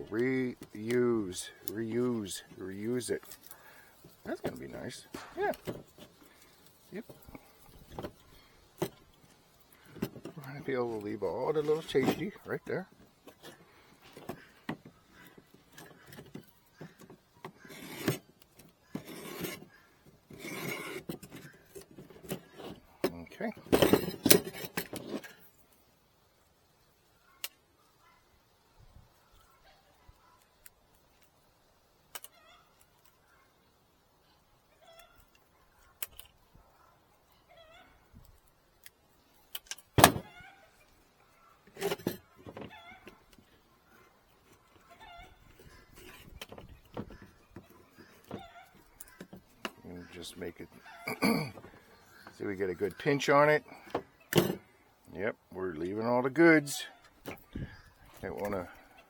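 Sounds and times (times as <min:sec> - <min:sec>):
hand tool scraping wooden frame: 0:00.0 - 0:22.9, 0:41.6 - 0:42.7.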